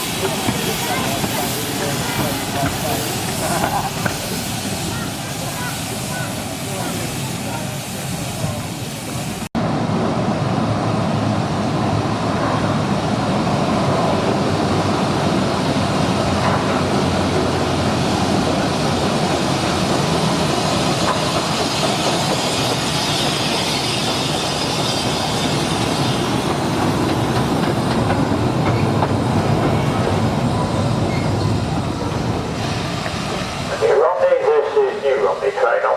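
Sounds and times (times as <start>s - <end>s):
train wheels clickety-clack: 0.0s - 5.0s, 16.2s - 33.5s.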